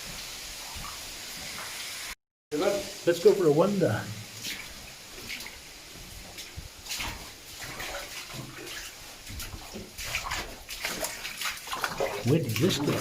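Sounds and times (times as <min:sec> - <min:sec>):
footsteps splashing through water: 0:04.2 - 0:13.0.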